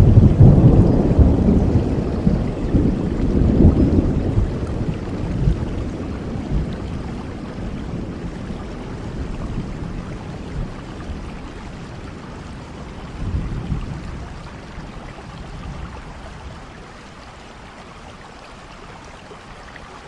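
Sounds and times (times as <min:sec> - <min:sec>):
low roll of thunder: 0:00.0 - 0:16.6
steady rain: 0:00.0 - 0:20.0.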